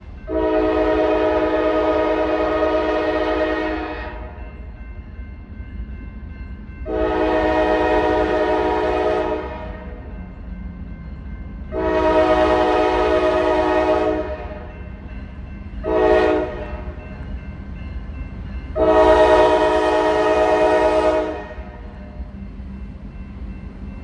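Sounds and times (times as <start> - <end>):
low rumble of passing train: 0.0 - 24.0
locomotive air horn blasts: 0.3 - 4.4, 6.9 - 10.0, 11.7 - 14.7, 15.8 - 17.0, 18.8 - 21.9.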